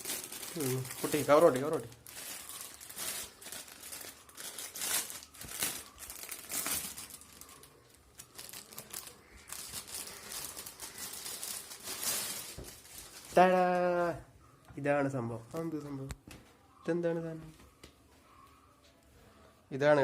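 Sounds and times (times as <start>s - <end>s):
packaging crinkling and rustling: 0.0s - 13.8s.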